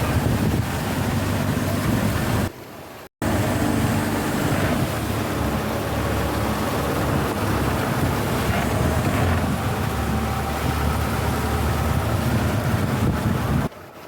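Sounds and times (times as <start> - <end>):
boat engine running: 0.0 - 2.6, 3.2 - 14.0
wind and water rushing: 0.0 - 14.0.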